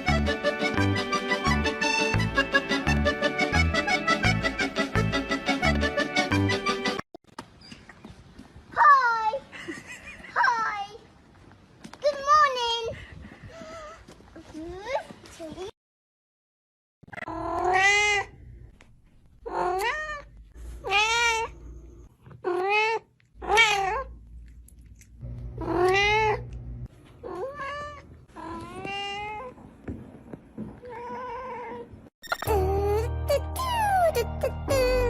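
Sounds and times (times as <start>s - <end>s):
cat meowing: 25.6s - 26.4s.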